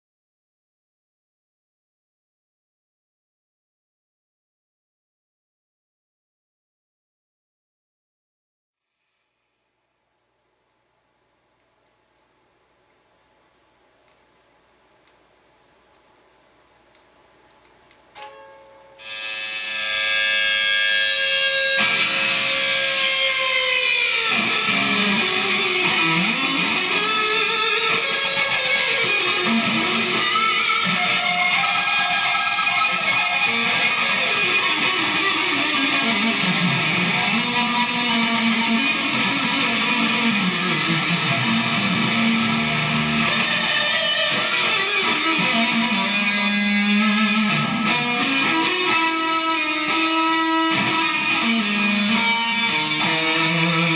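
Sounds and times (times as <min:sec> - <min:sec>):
distorted electric guitar noise: 0:18.2 - 0:53.9.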